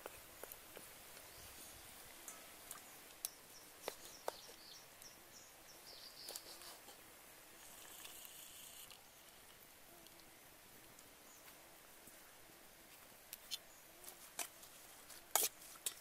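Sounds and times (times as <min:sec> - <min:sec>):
soft hiss: 0:00.0 - 0:16.0
small bird chirping: 0:02.7 - 0:06.7.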